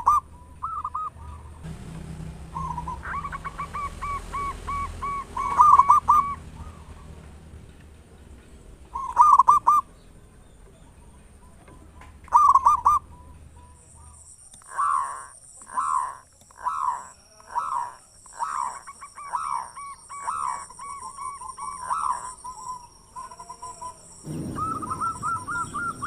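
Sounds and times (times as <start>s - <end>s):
dove cooing: 0.0s - 7.2s, 8.9s - 10.0s, 11.4s - 26.0s
steady high-pitched buzz: 1.6s - 6.5s.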